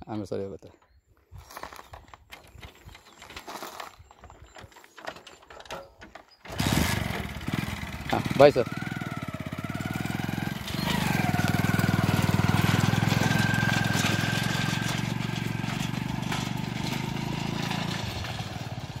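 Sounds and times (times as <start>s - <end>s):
motorcycle engine running: 6.5s - 19.0s.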